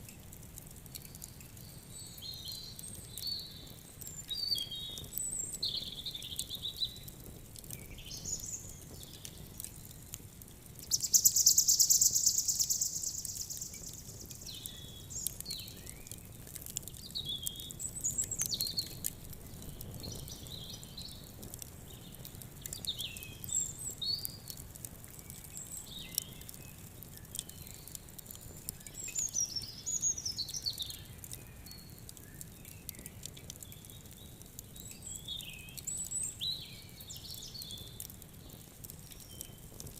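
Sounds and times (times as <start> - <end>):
wood fire crackling: 0.0 - 39.9
birds chirping: 10.9 - 16.2.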